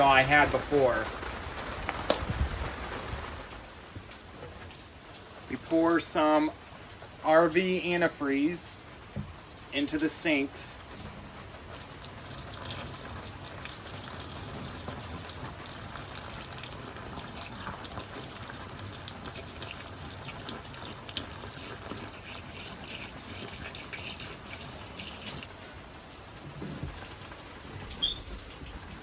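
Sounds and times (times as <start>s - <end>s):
rain pattering on a camper: 0.0s - 29.0s
liquid pouring into a drain: 11.3s - 29.0s.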